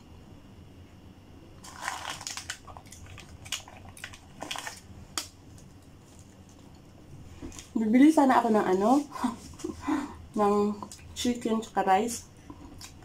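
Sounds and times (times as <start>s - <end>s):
chewing crunchy fried chicken: 1.6s - 7.8s, 12.4s - 13.0s.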